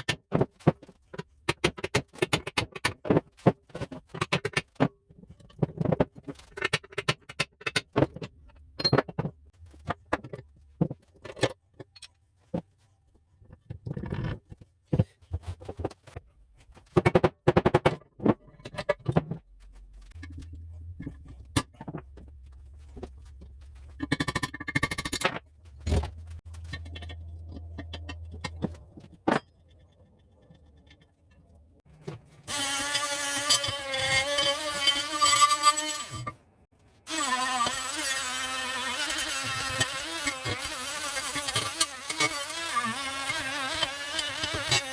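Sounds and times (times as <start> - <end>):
low hum: 19.6 - 24.0
buzzing electric motor: 37.1 - 44.9.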